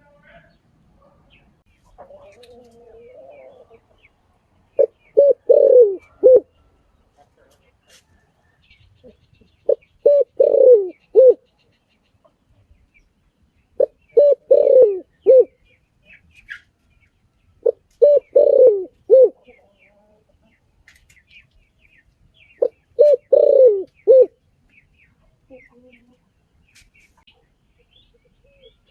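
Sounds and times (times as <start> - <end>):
small birds chirping: 0.0 - 28.9
dove cooing: 2.0 - 3.9, 4.7 - 6.5, 9.0 - 11.4, 13.8 - 15.6, 17.6 - 19.6, 22.6 - 24.4.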